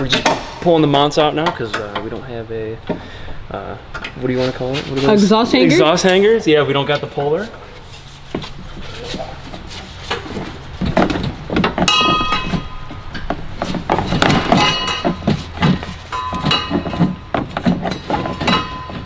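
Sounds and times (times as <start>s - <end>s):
exhaust pipe ringing: 0.0s - 19.0s
tools knocking on metal: 10.9s - 19.0s.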